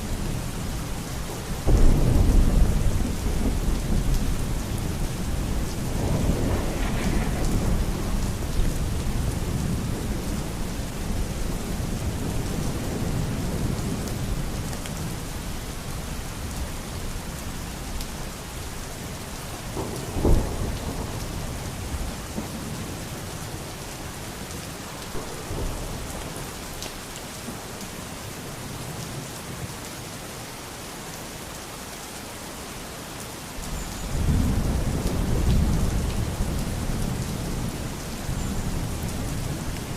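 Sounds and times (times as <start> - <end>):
heavy rain: 0.0 - 39.9
thunder rumbling: 1.4 - 15.2, 19.6 - 23.1, 25.1 - 26.8, 34.1 - 39.9
sharp thunderclap: 1.7 - 10.2, 19.8 - 22.8, 25.1 - 26.4.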